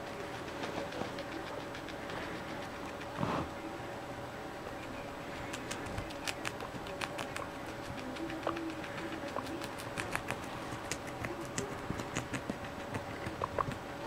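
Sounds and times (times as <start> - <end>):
guinea pigs chewing cabbage: 0.0 - 14.0
steady background hum: 0.0 - 14.0.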